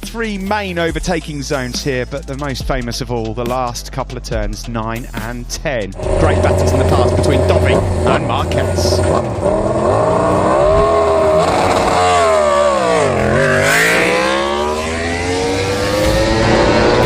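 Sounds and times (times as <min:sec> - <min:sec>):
racing motorcycle engine revving: 0:06.0 - 0:17.0.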